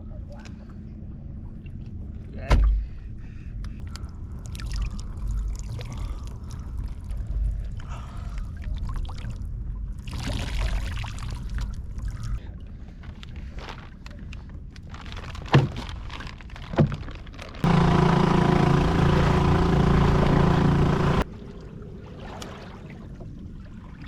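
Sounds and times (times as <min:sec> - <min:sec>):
steady low rumble: 0:00.0 - 0:15.2
water sloshing around kayak: 0:18.7 - 0:24.0.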